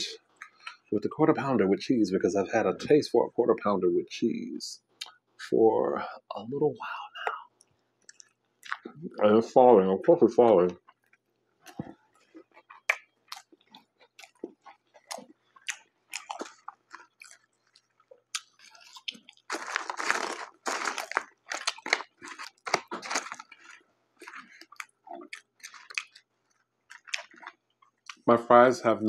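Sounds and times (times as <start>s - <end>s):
man chewing with wet smacks: 0.3s - 0.9s, 7.5s - 9.1s, 10.7s - 28.2s.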